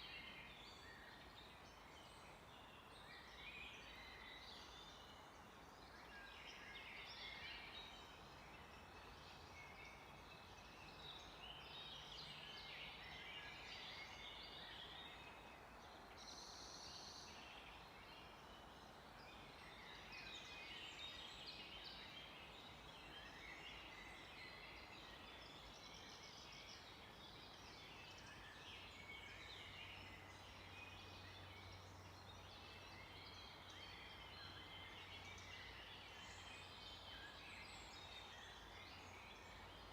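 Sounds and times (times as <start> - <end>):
low background hiss: 0.0 - 39.9
songbirds chirping and trilling: 0.0 - 39.9.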